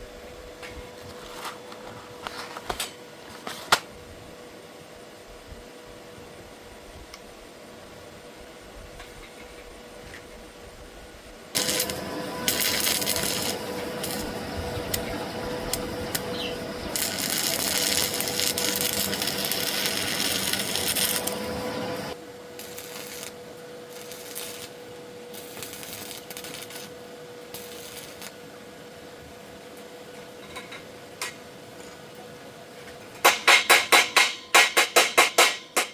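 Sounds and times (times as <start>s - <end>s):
steady hum: 0.0s - 35.9s
metal rasping and crackling: 11.6s - 28.4s.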